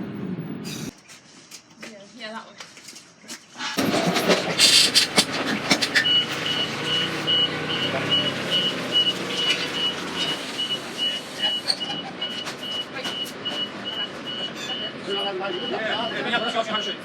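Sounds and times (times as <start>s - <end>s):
high warning beeper: 6.0s - 17.0s.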